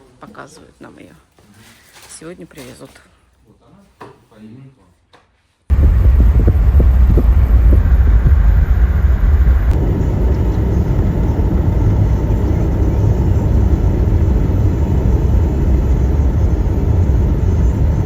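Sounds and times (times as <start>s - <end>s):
car road and engine rumble: 5.7s - 18.0s.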